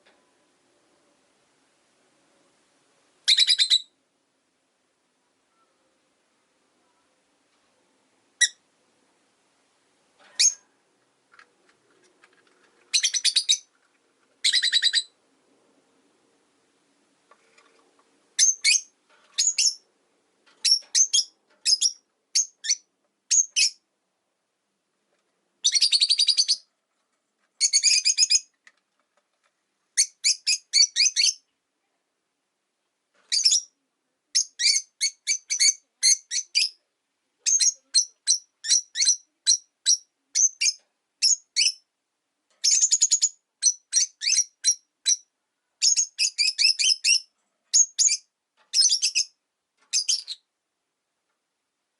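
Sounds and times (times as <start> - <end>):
lovebirds chirping shrilly: 18.4 - 19.8.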